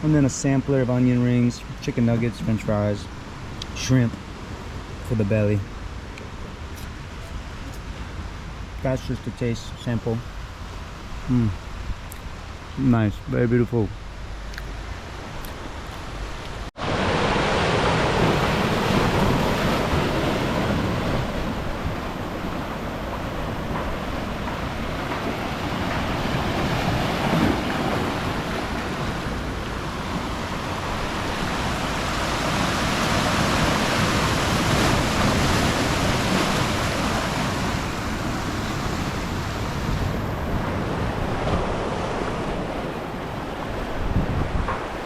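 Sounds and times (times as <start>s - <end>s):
ocean surf washing in: 15.1s - 45.0s
wind buffeting microphone: 15.3s - 45.0s.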